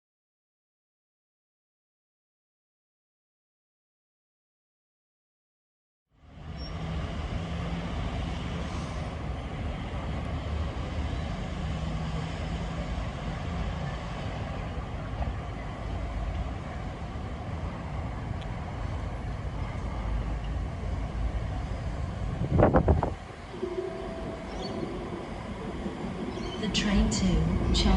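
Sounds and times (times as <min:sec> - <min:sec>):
low rumble of vehicle noise: 0:06.1 - 0:27.9
faint hum: 0:18.4 - 0:27.9.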